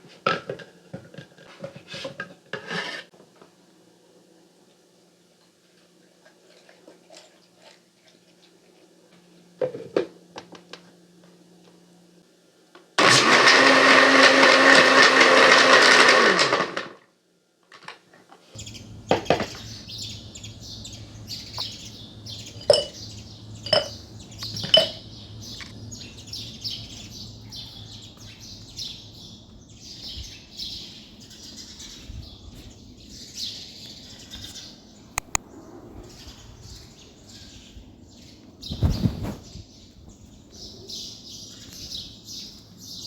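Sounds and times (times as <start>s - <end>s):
low steady hum: 18.6s - 38.6s
small birds chirping: 18.6s - 43.0s
sharp clinks: 22.5s - 25.1s.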